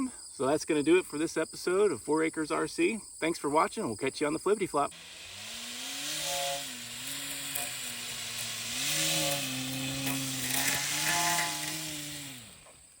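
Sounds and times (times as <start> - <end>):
model airplane motor whining: 4.9 - 13.0.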